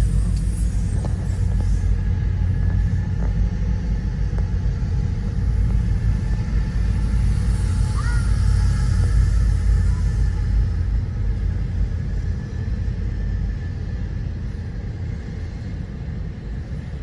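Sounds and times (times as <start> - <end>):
freight train rumble: 0.0 - 17.0
high squeal: 7.0 - 11.0.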